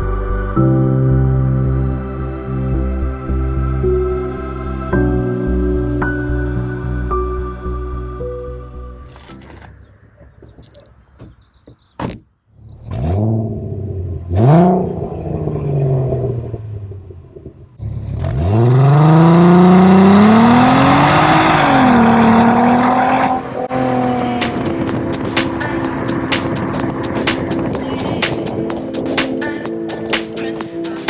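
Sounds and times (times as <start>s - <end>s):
car engine revving: 12.7s - 31.0s.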